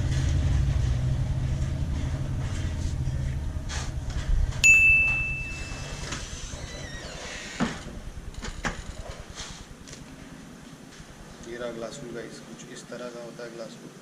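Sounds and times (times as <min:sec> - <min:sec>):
low rumble: 0:00.0 - 0:11.3
sharp metallic clang: 0:04.6 - 0:06.0.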